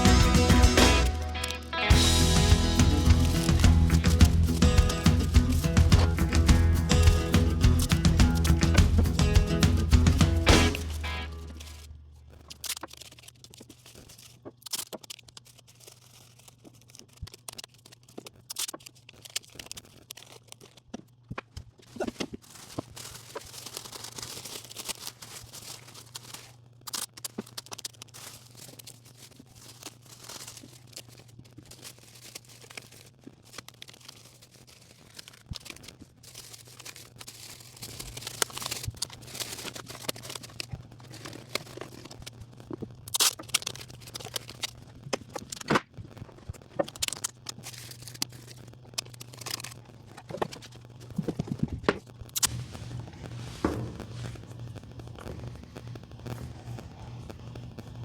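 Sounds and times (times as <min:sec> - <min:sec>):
steady low hum: 0:00.0 - 0:12.5, 0:47.6 - 0:58.0.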